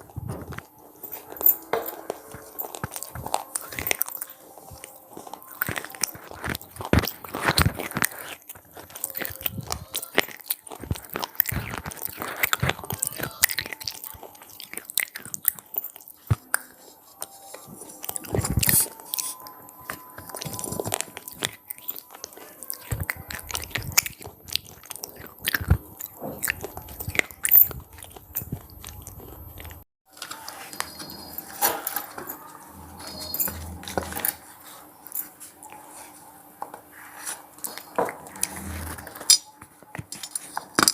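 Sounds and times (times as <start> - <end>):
crunchy snack chewing: 0.0 - 29.8.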